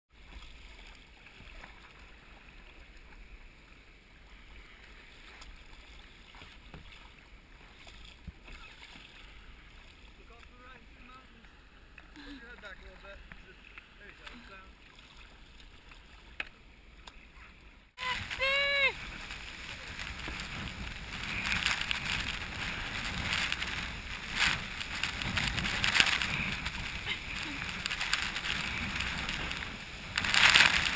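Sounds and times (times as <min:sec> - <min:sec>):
kayak paddling on water: 0:00.1 - 0:30.9
wind rumble on microphone: 0:18.0 - 0:30.9.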